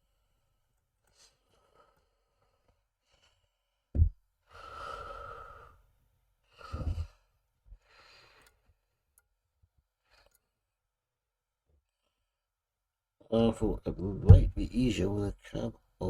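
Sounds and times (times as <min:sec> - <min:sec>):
low thump: 0:04.0 - 0:04.2, 0:14.2 - 0:14.7.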